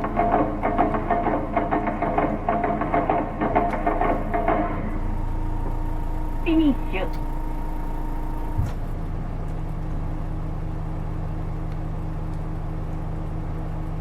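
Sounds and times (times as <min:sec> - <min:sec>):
vehicle engine idling: 0:00.0 - 0:14.0
faint steady tone: 0:04.9 - 0:09.0.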